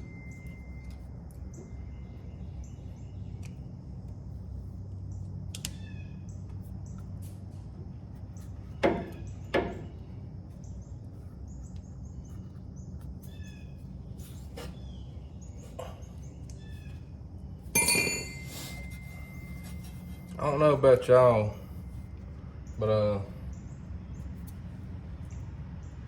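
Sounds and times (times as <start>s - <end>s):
low steady hum: 0.0s - 26.0s
small birds chirping: 1.3s - 17.5s, 20.4s - 26.0s
ringing metal clatter: 17.7s - 20.6s
sharp metallic knocks: 17.8s - 19.7s.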